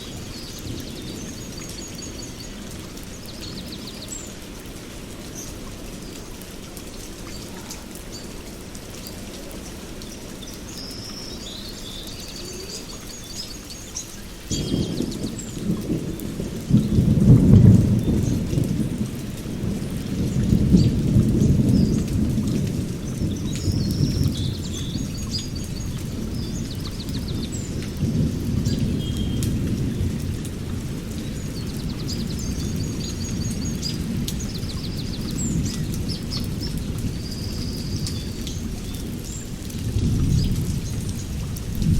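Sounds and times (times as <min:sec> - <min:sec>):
steady rain: 0:00.0 - 0:41.9
thunder rumbling: 0:14.5 - 0:41.9.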